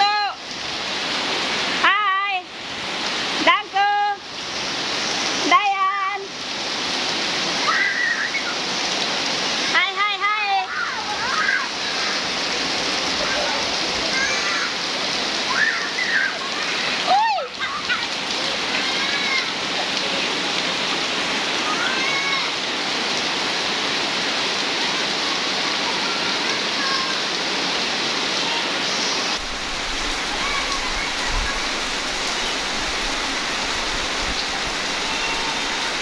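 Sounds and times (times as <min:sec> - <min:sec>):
heavy rain pouring: 0:00.0 - 0:36.0
faint voices calling out: 0:24.9 - 0:27.5, 0:28.1 - 0:36.0.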